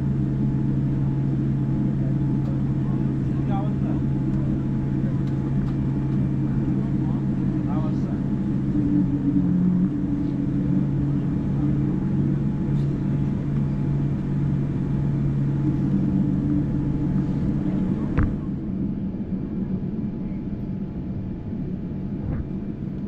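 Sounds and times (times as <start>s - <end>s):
airliner cabin hum: 0.0s - 23.0s
jet engines running: 0.0s - 23.0s
single short knock: 22.2s - 22.5s.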